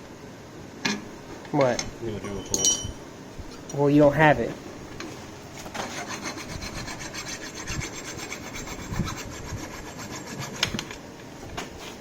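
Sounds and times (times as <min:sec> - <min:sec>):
hand file rasping on metal: 0:05.8 - 0:10.7.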